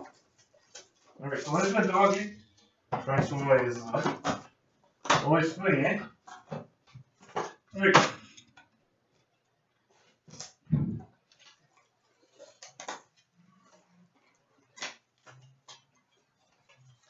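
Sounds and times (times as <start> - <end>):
cards and packaging rustling: 0.1 - 2.3, 11.2 - 17.0.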